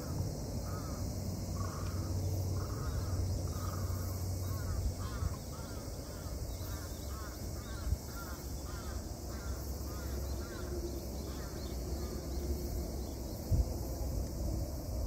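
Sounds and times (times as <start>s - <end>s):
wind rumble on microphone: 10.4s - 15.0s.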